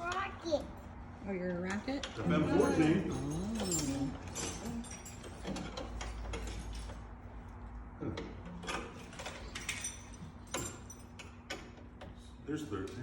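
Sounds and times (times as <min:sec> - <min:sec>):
tools clicking and knocking on metal: 0:03.4 - 0:07.1, 0:08.2 - 0:12.3.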